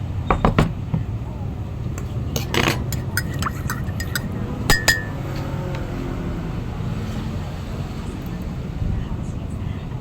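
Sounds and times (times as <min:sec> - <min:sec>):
utensils clinking on dishes: 0:01.9 - 0:05.8.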